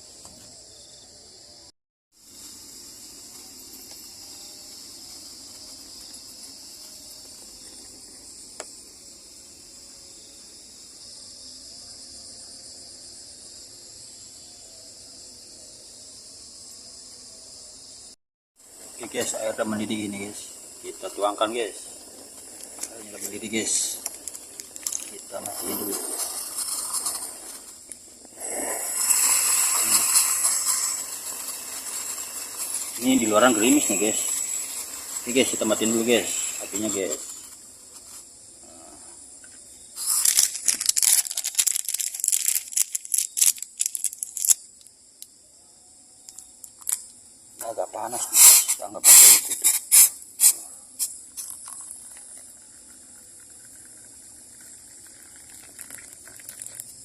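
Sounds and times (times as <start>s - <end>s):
crickets and night insects trilling: 0.0s - 57.0s
water pouring splash: 51.5s - 56.9s.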